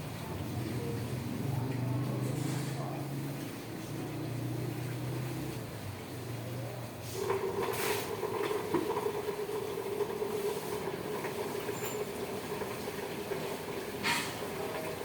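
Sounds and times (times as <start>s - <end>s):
pump motor humming: 7.2s - 15.0s.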